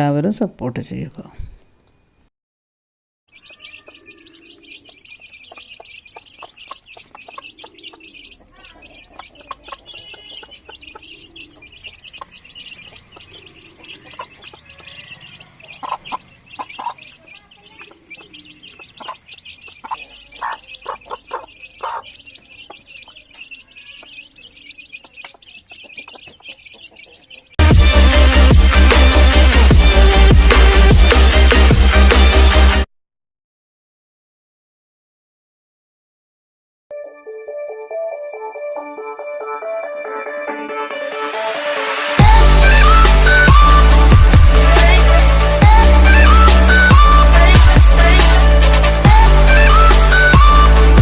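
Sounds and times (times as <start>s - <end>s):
sharp bird calls: 3.3s - 31.3s, 42.2s - 51.0s
chickens clucking softly: 3.4s - 27.5s
high-pitched chirring chorus: 3.4s - 31.2s, 41.5s - 51.0s.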